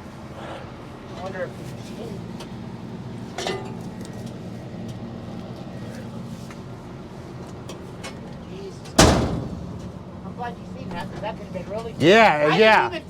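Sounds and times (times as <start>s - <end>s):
engine idling: 3.7s - 13.0s.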